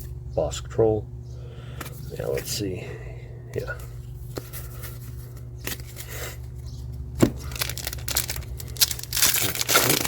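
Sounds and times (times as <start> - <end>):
steady low hum: 0.0 - 10.0
papery rustling of card packaging: 7.2 - 10.0.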